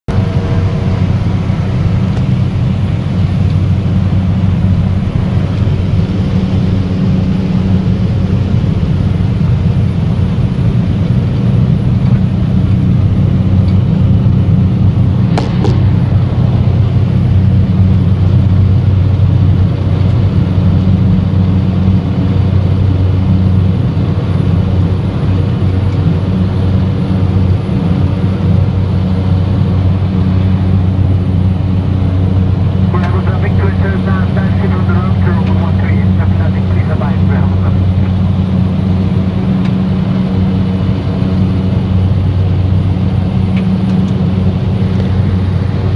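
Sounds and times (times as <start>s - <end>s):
turboprop engine drone: 0.0s - 45.9s.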